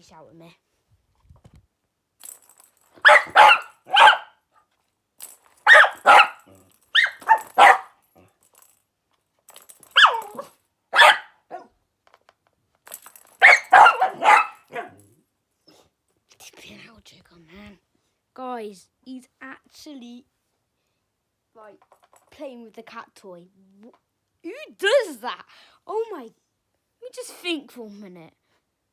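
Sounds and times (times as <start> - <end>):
dog barking playfully: 3.0 - 4.4, 5.6 - 8.0, 10.0 - 11.7, 13.4 - 15.0.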